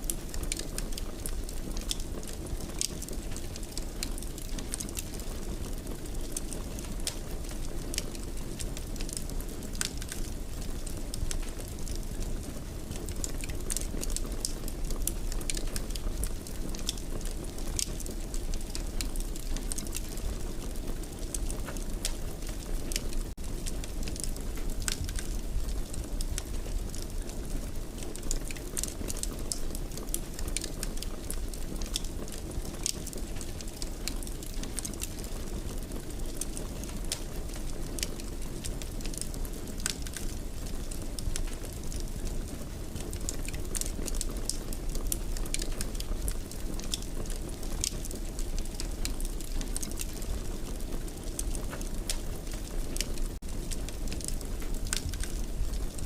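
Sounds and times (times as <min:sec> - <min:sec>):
fire crackling in a fireplace: 0:00.0 - 0:56.0.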